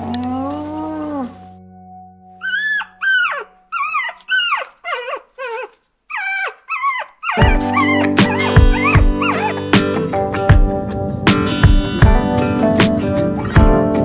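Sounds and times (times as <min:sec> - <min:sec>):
puppy whining: 0:02.4 - 0:09.8
plucked guitar music: 0:07.4 - 0:14.0.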